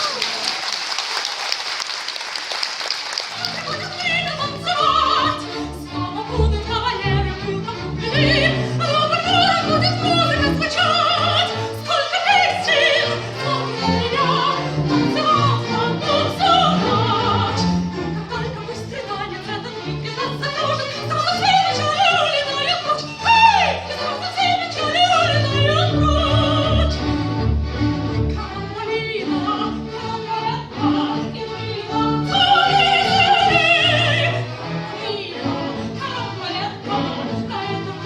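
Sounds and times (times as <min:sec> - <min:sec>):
operatic singing with vibrato: 0:03.3 - 0:38.0.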